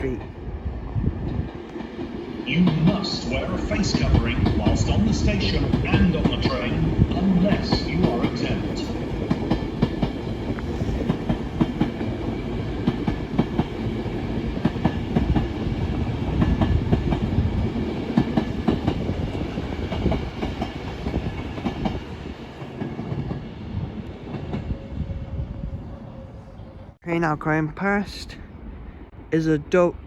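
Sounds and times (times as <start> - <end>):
heavy train rumble: 0.0 - 30.0
train wheels clicking on rails: 1.2 - 24.8.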